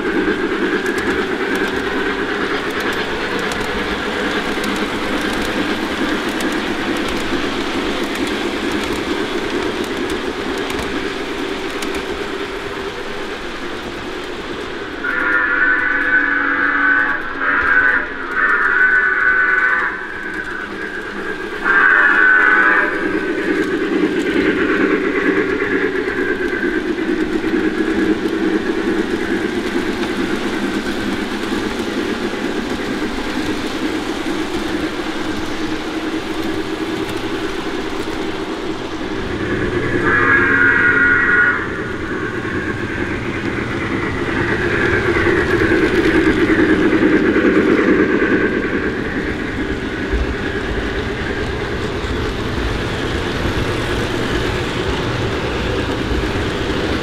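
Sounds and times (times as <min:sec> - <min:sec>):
model train running on track: 0:00.0 - 0:57.0
steam whistle blasts: 0:15.0 - 0:23.3, 0:39.4 - 0:43.1.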